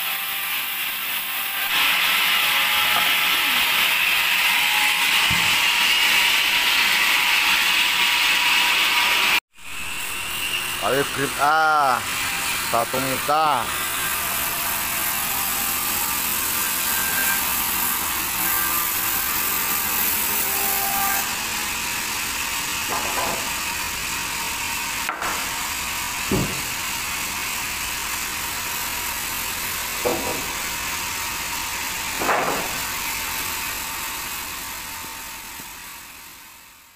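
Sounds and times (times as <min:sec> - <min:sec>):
band sawmill whirring: 0:08.8 - 0:35.9.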